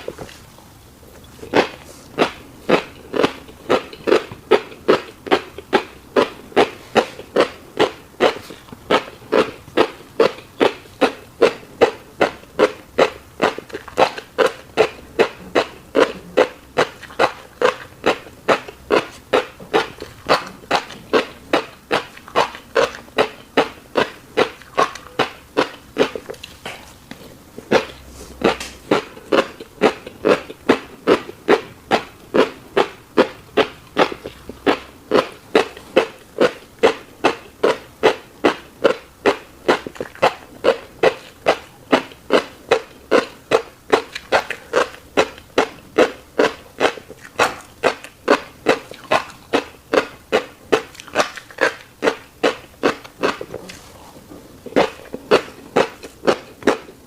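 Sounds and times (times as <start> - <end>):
chewing with wet mouth smacks: 0.0 - 57.0.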